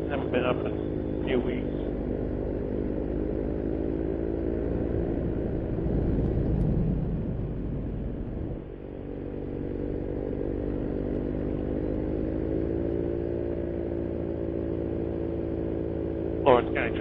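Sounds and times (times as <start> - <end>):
two-stroke engine running: 0.0 - 17.0.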